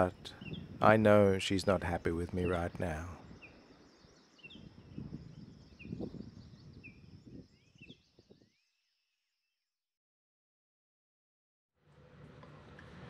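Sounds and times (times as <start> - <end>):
faint bird chirping: 0.0 - 9.6.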